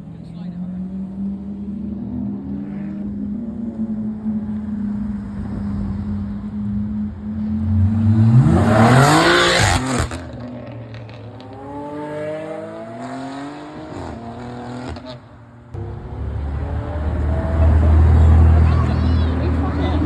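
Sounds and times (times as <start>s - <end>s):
car accelerating hard: 0.6s - 20.0s
second car revving: 0.6s - 20.0s.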